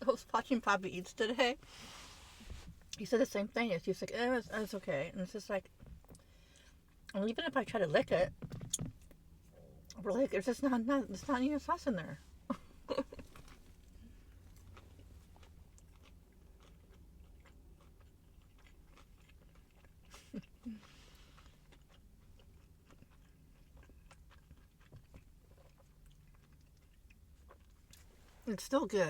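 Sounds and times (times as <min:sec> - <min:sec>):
person chewing food: 0:12.5 - 0:28.3.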